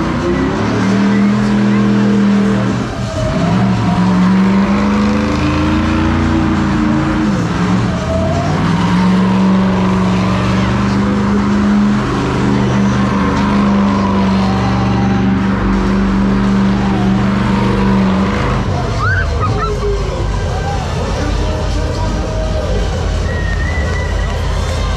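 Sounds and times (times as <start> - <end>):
car engine revving high: 0.0 - 24.9
tyre squeal: 18.7 - 20.8, 23.1 - 24.9.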